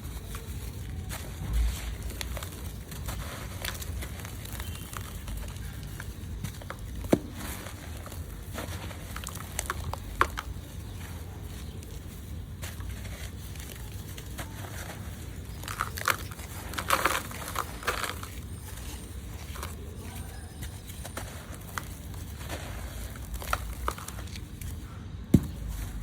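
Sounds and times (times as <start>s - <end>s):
hands crumbling gritty dirt: 0.0s - 26.0s
dull bump: 25.3s - 25.7s.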